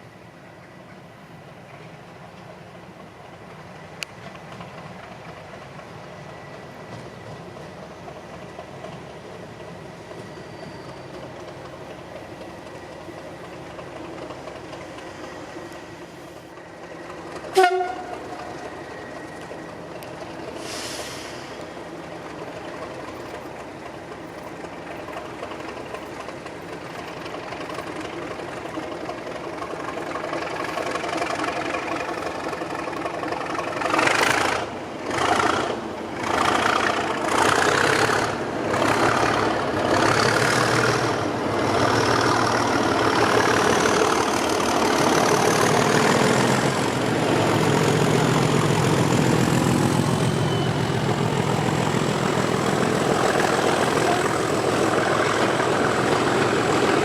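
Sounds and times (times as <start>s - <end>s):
diesel locomotive engine: 0.0s - 57.0s.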